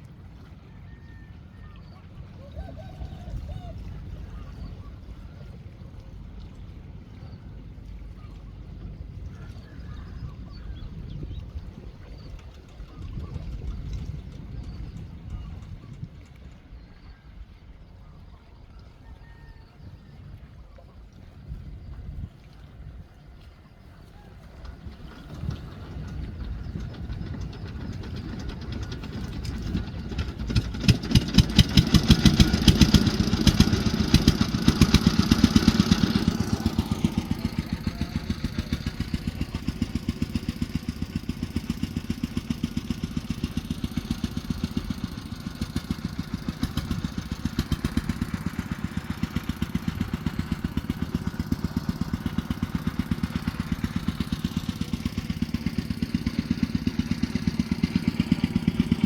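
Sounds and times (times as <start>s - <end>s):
small engine running: 24.3s - 59.0s.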